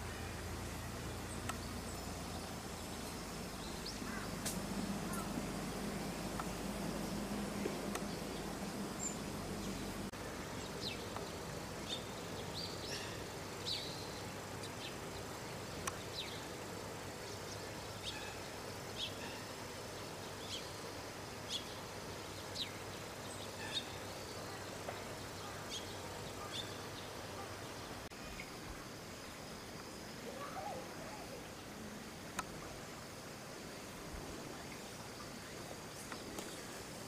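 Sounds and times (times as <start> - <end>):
steady low hum: 0.0 - 28.1
small birds chirping: 0.0 - 32.7, 33.8 - 37.0.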